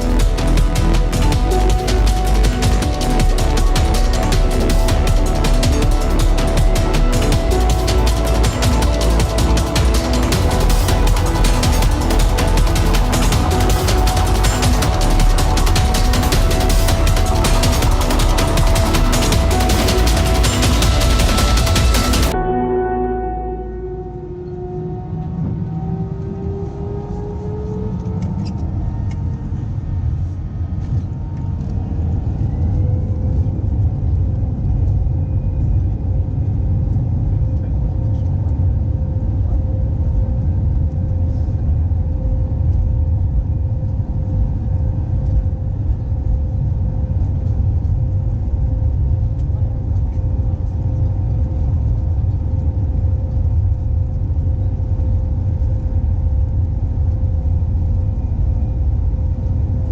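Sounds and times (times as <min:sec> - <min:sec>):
heavy engine rumble: 0:00.0 - 0:22.5
jet engine whine: 0:23.9 - 0:59.9.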